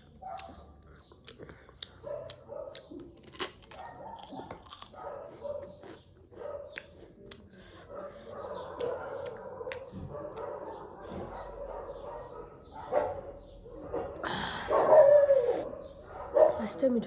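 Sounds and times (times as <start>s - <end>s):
crunching and chewing: 0.0s - 12.2s
mouth clicks: 8.5s - 10.8s.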